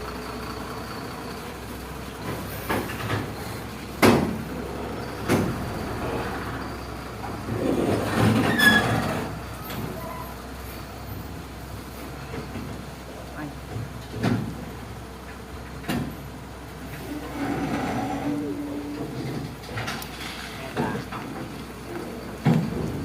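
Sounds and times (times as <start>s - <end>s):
truck passing: 0.0s - 23.0s
short squeal: 8.3s - 10.4s.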